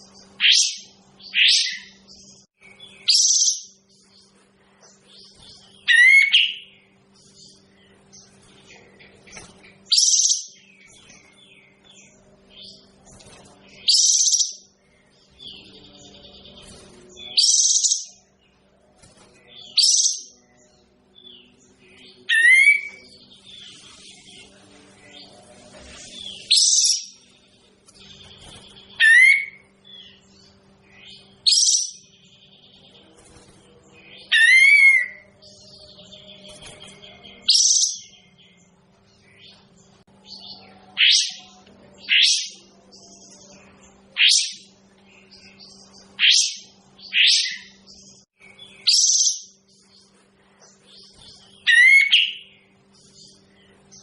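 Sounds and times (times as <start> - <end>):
faint steady hum: 0.0 - 54.0
bird singing high trilled phrases: 0.2 - 4.1, 5.1 - 18.3, 19.6 - 24.0, 26.2 - 27.3, 28.0 - 32.8, 34.1 - 38.4, 44.2 - 50.0, 50.9 - 54.0
bird calling: 28.9 - 30.2, 51.0 - 52.6.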